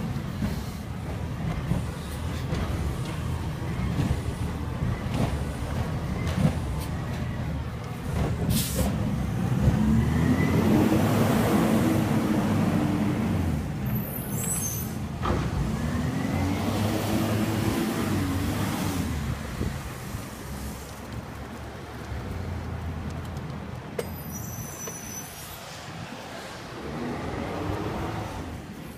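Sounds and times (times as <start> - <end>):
diesel truck engine revving: 8.0 - 13.8, 15.2 - 19.6.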